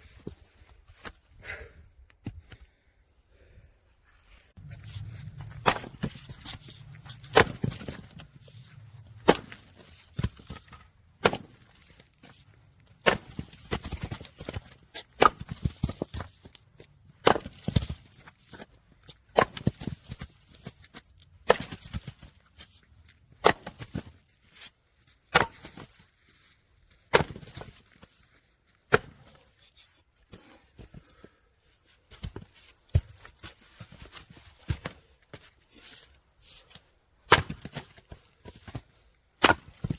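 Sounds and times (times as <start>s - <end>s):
wood splitting cracks: 5.4s - 8.3s, 9.1s - 12.0s, 12.9s - 16.2s, 17.1s - 18.0s, 39.4s - 39.9s
split wood pieces falling: 5.4s - 8.4s.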